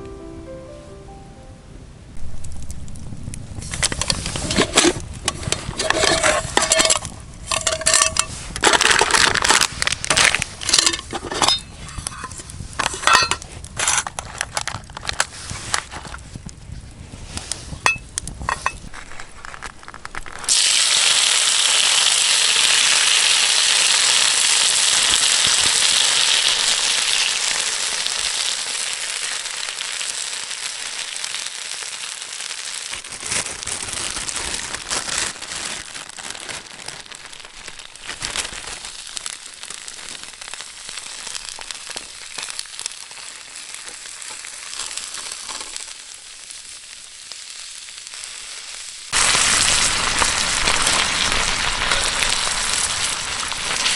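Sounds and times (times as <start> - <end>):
crackles knocks and clinks: 2.3 - 16.5, 17.7 - 20.6
food sizzling in a pan: 20.4 - 33.1, 35.8 - 53.9.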